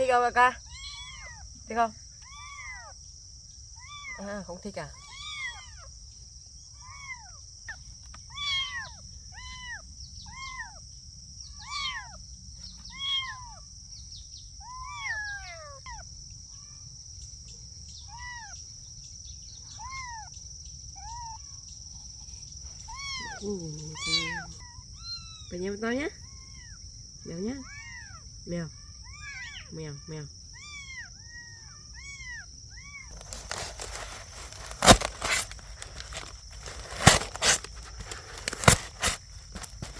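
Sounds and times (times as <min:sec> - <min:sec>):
kittens mewing: 0:00.6 - 0:01.6, 0:02.2 - 0:03.0, 0:03.8 - 0:04.3, 0:04.9 - 0:05.9, 0:06.8 - 0:07.4, 0:08.3 - 0:10.8, 0:22.9 - 0:25.5, 0:27.6 - 0:28.2, 0:30.5 - 0:39.9.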